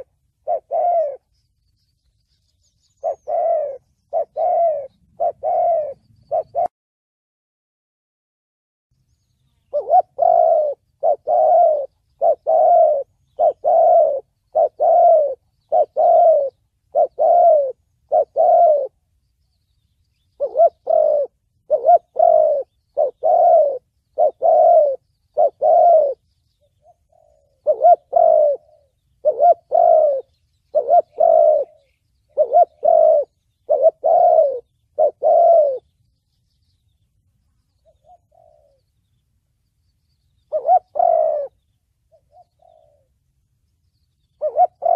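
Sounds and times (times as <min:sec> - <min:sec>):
dove cooing: 0:00.0 - 0:01.3, 0:02.8 - 0:06.7, 0:09.6 - 0:19.1, 0:20.2 - 0:35.9, 0:37.8 - 0:39.1, 0:40.4 - 0:43.2, 0:44.2 - 0:44.9.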